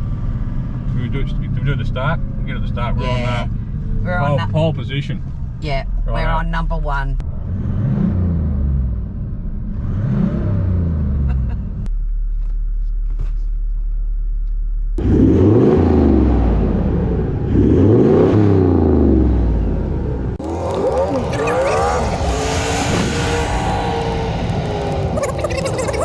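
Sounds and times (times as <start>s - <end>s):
engine accelerating through gears: 7.2s - 26.0s.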